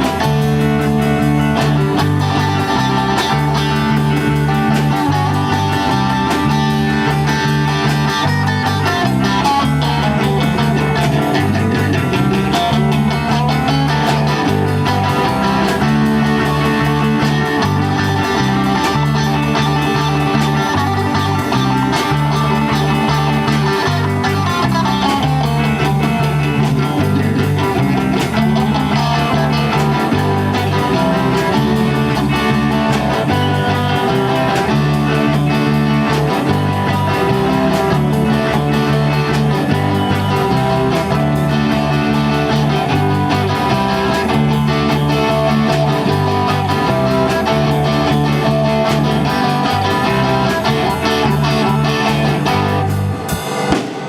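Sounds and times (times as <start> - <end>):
repeating bass line: 0.0 - 54.0
rock guitar playing: 0.0 - 54.0.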